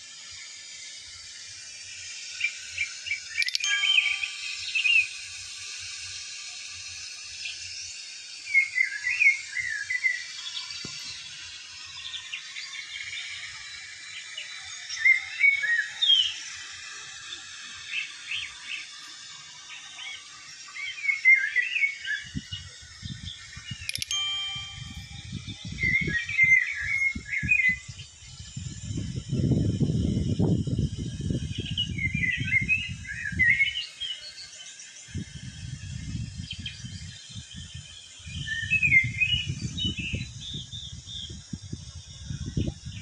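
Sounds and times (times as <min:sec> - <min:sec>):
birds chirping: 0:03.1 - 0:05.1, 0:23.1 - 0:28.1.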